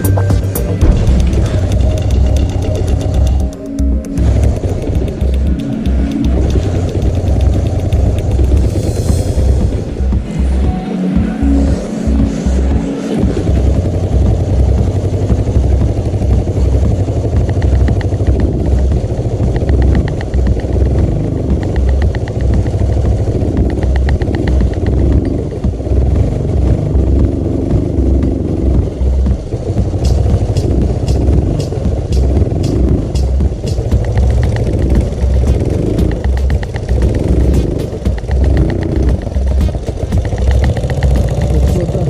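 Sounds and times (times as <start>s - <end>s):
pit bike engine running: 0.0s - 42.0s.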